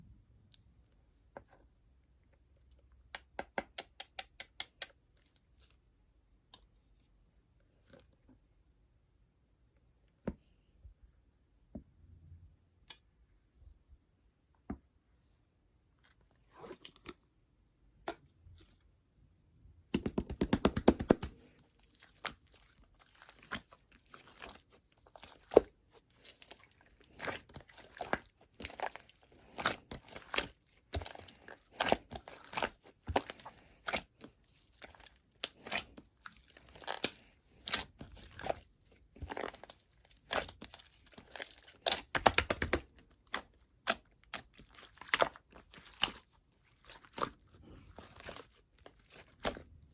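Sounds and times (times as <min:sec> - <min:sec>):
slime crackling and popping: 0:22.0 - 0:46.3.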